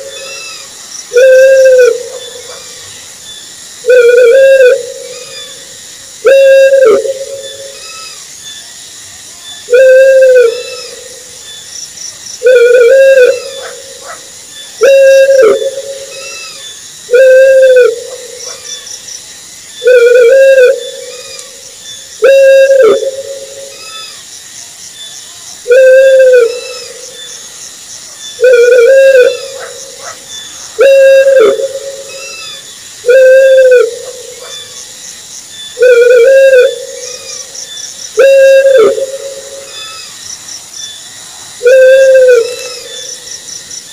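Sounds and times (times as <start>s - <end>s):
owl hooting: 0.0s - 2.8s, 3.8s - 8.2s, 9.7s - 11.3s, 12.4s - 18.9s, 19.8s - 21.6s, 22.2s - 24.2s, 25.7s - 27.3s, 28.4s - 34.8s, 35.8s - 37.6s, 38.2s - 40.2s, 41.6s - 43.2s.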